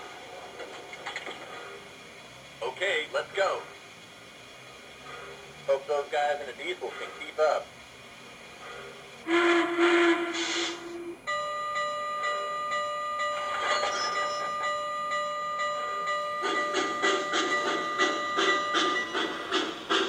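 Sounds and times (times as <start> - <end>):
steam exhaust chuffs: 0.0 - 11.5, 12.1 - 20.0
steam locomotive whistle: 9.2 - 12.4
locomotive bell ringing: 11.2 - 20.0.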